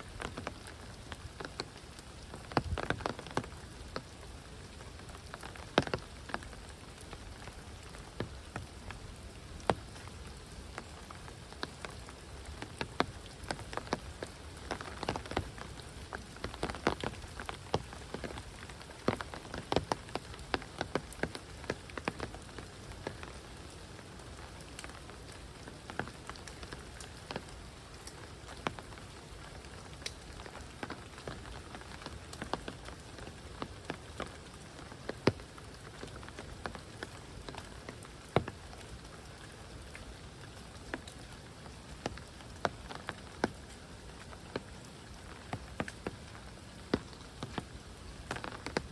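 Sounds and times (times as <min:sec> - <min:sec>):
heavy rain falling: 0:00.0 - 0:48.9
sharp raindrops landing close: 0:00.0 - 0:48.9.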